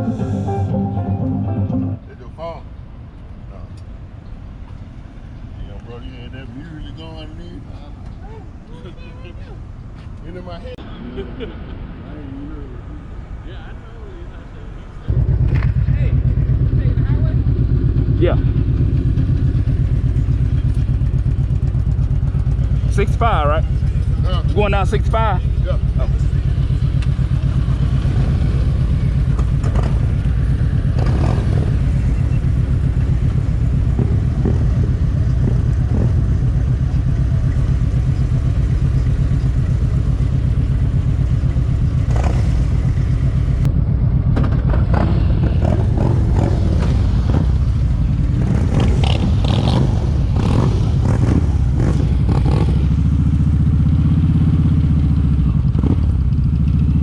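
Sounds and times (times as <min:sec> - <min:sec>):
motorcycle engine running: 0:15.1 - 0:57.0.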